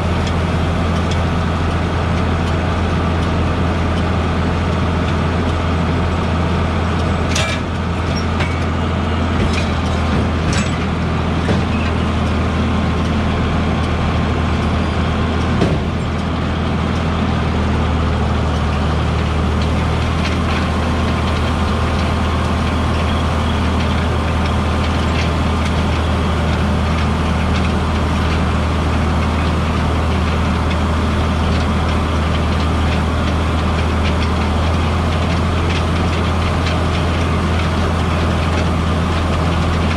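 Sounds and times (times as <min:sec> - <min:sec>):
large engine droning: 0:00.0 - 0:39.9.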